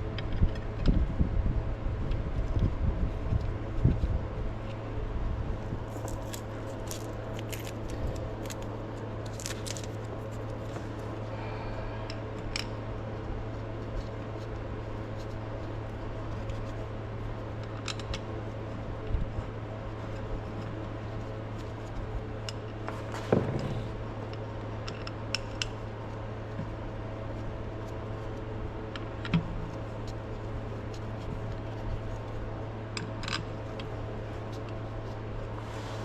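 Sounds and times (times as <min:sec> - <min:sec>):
steady low hum: 0:00.0 - 0:36.0
heavy knocks and rumbling: 0:23.1 - 0:24.1.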